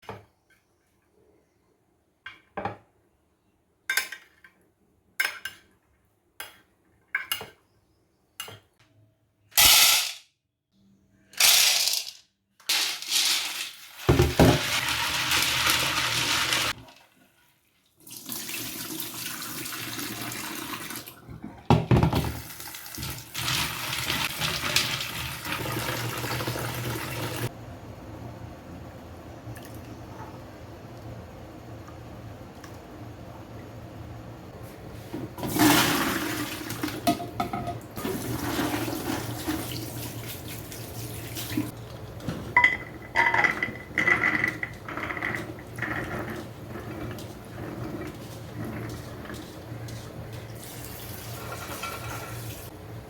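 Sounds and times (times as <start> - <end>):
water running from kitchen tap: 13.1 - 21.4, 22.1 - 27.5, 35.4 - 37.1, 37.8 - 42.3, 44.4 - 52.8.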